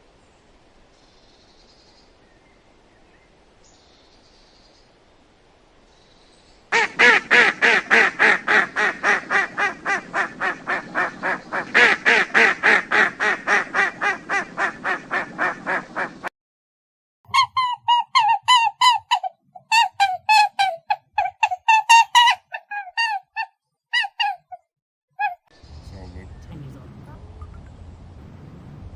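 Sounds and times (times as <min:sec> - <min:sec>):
birds calling rapidly: 0:06.8 - 0:16.2
higher-pitched bird calls: 0:17.3 - 0:25.8.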